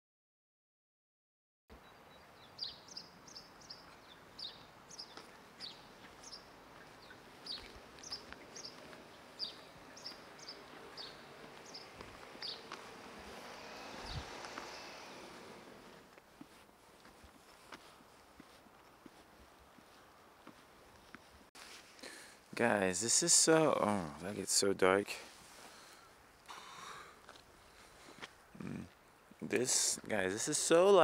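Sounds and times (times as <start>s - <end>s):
faint outdoor background noise: 1.7s - 31.0s
small bird chirping: 1.8s - 15.9s.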